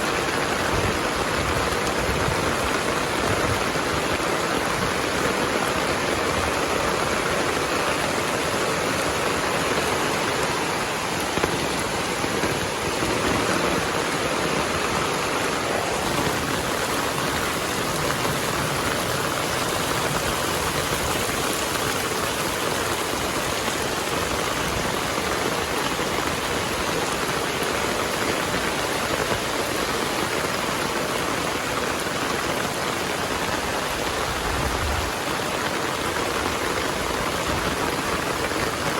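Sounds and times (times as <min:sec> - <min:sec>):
heavy rain hissing: 0:00.0 - 0:38.9.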